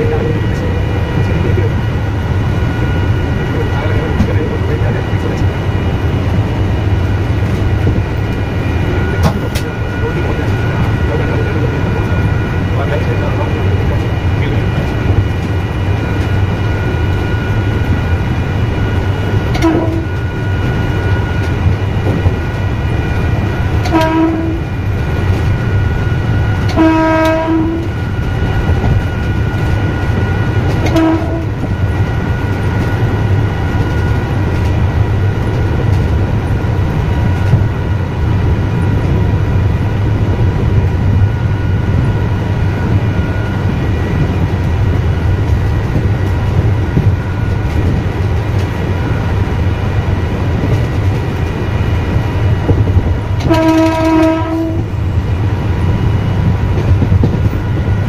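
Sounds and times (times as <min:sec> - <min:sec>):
electric train rumble and whine: 0:00.0 - 0:58.0
train horn blasts: 0:19.5 - 0:20.3, 0:23.8 - 0:24.7, 0:26.6 - 0:28.0, 0:30.8 - 0:31.7, 0:53.4 - 0:54.9.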